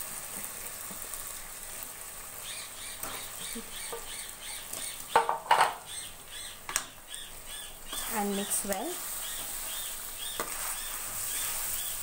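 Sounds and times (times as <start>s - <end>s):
birds chirping: 2.4s - 12.0s.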